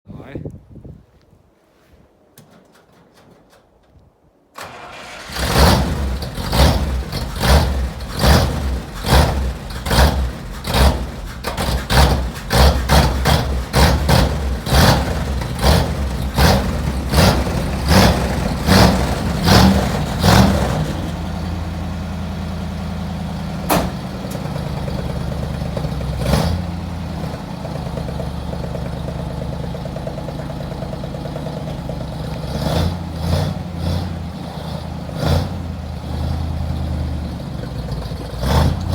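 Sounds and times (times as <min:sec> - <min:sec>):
engine running rough then idling: 0:04.6 - 0:38.9
sharp click: 0:23.7 - 0:24.5.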